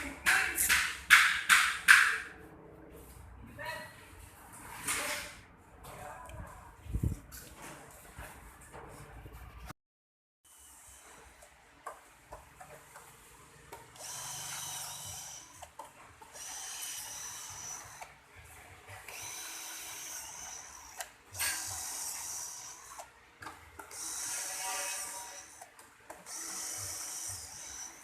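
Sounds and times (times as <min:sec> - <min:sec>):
power tool running: 0:13.7 - 0:18.2, 0:19.0 - 0:23.1, 0:23.8 - 0:28.0.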